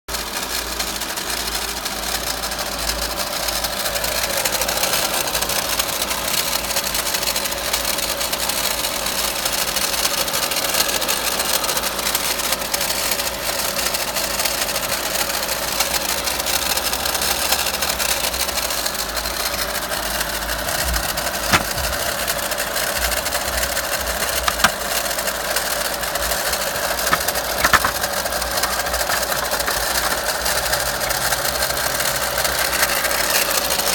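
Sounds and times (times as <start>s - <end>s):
car engine rattling: 0.2s - 33.9s
sharp clicks: 23.2s - 24.8s, 26.4s - 30.6s.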